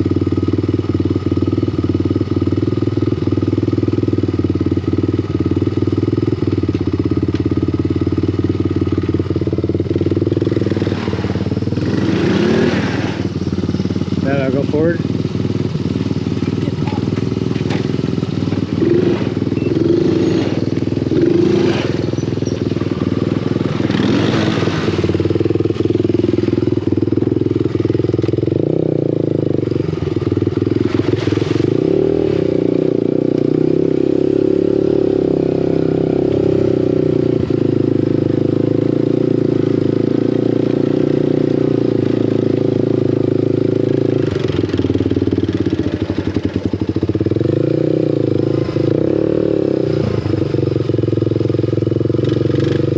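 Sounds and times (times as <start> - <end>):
off-road vehicle engine running: 0.0 - 52.9.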